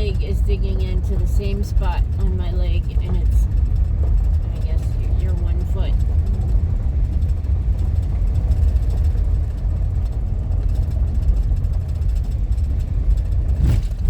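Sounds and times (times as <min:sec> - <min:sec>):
tyres rumbling on gravel: 0:00.0 - 0:14.0
vehicle engine: 0:00.0 - 0:14.0.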